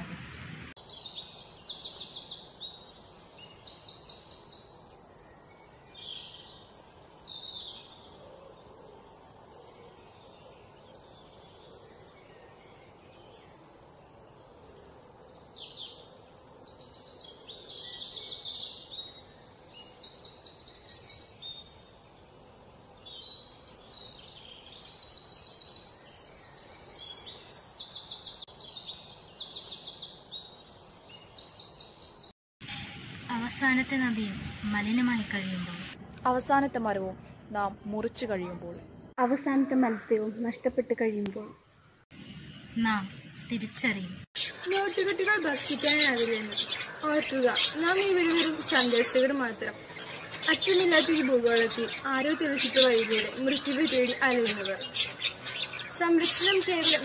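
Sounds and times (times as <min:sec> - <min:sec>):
birds chirping with rapid trills: 0:00.0 - 0:57.0.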